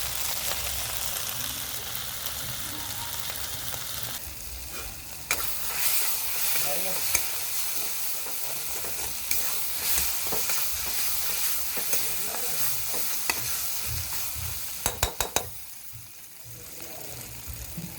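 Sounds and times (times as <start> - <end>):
food sizzling in oil: 0.0 - 17.9
spatula scraping pan: 4.7 - 15.6.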